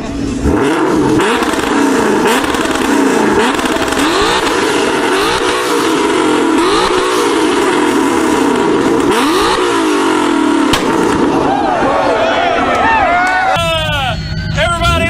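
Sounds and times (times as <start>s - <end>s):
car engine revving: 0.0s - 12.6s
exhaust pops: 0.4s - 11.4s.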